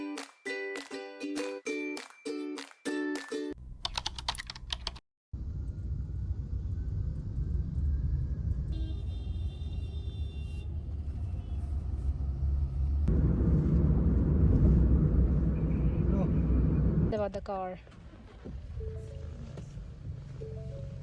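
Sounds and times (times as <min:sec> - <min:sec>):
ukulele music: 0:00.0 - 0:03.6
vehicle rumble from inside: 0:05.4 - 0:21.0.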